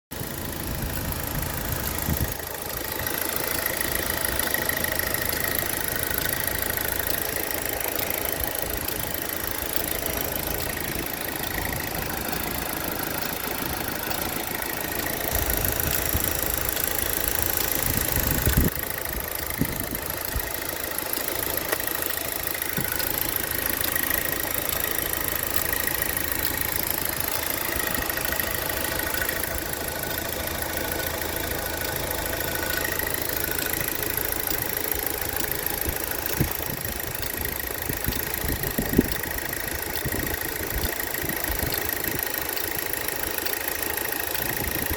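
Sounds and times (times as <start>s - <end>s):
car engine idling: 0.0s - 44.9s
regular ticking: 0.1s - 44.9s.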